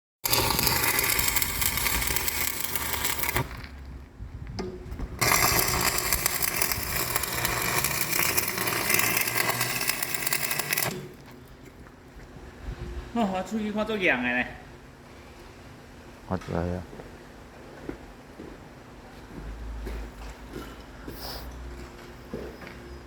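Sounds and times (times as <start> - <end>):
loud mechanical noise: 0.2 - 3.8, 5.1 - 11.3.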